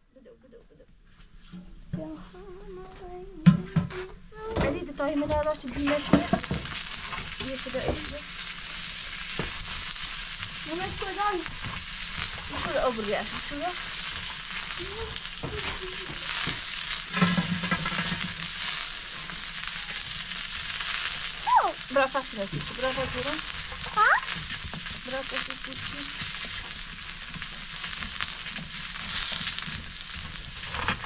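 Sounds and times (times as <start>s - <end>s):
food sizzling in a pan: 4.9s - 31.0s.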